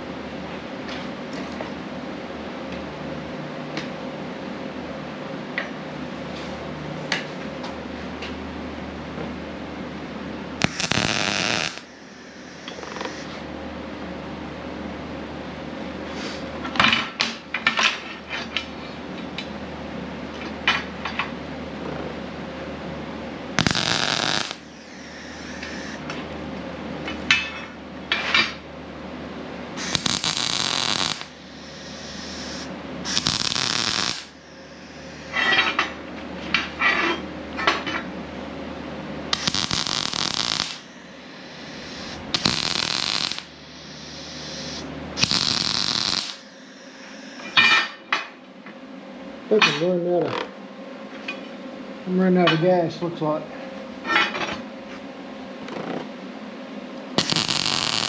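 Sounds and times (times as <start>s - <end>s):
welder crackling: 10.6s - 13.4s, 23.6s - 26.1s, 29.8s - 35.8s, 39.3s - 47.7s, 57.2s - 58.0s.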